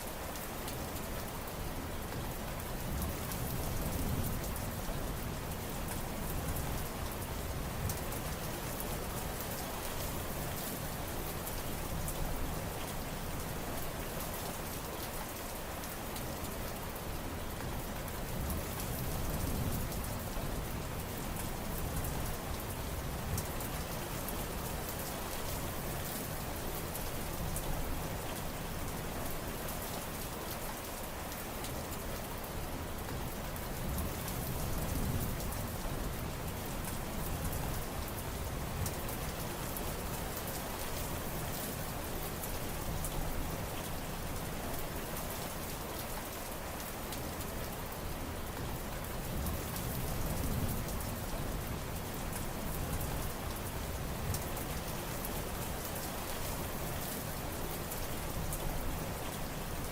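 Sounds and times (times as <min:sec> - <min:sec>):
heavy rain pattering: 0:00.0 - 0:59.9.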